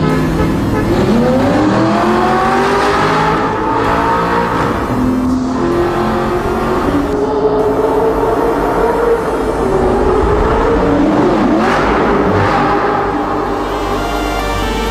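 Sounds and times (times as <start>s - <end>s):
sports car engine accelerating: 0.0s - 14.9s.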